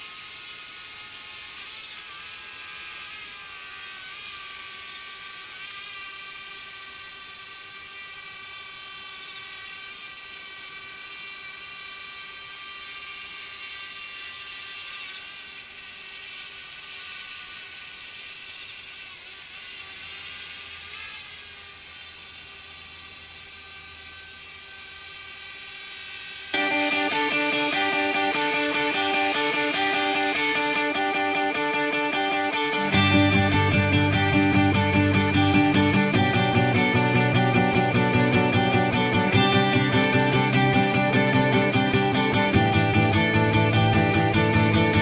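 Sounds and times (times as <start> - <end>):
drone propellers whining: 19.9 - 45.0.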